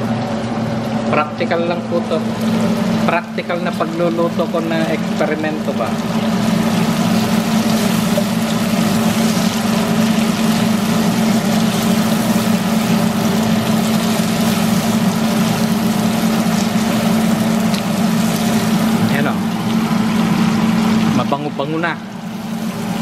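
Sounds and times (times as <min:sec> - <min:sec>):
low mechanical hum: 0:00.0 - 0:23.0
chicken sizzling in a wok: 0:02.1 - 0:21.2, 0:22.1 - 0:23.0
spatula turning food: 0:02.4 - 0:20.1.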